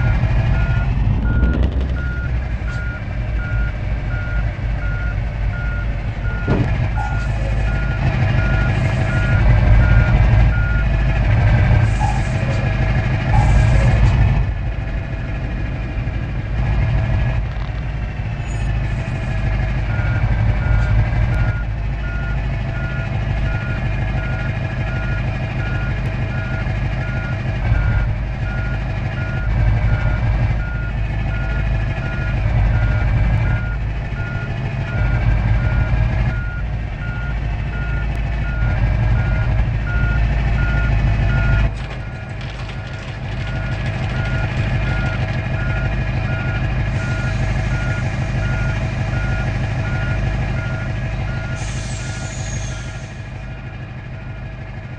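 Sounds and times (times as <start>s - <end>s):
reversing alarm beeping: 0.0s - 10.9s, 19.9s - 42.3s, 43.5s - 53.1s
truck engine rumbling: 0.0s - 54.9s.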